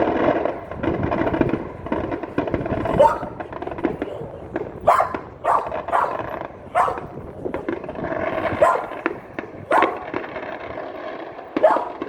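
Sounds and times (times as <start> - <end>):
dog barking: 2.6 - 10.2, 11.6 - 12.0.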